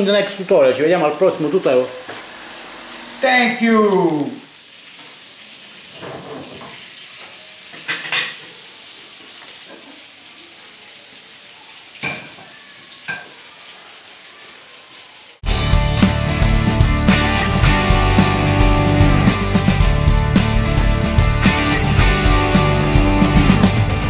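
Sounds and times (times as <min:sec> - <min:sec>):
steady hiss: 0:00.0 - 0:11.7
dishes and cutlery clinking: 0:07.7 - 0:08.6, 0:12.0 - 0:13.4
loud music: 0:15.4 - 0:24.0.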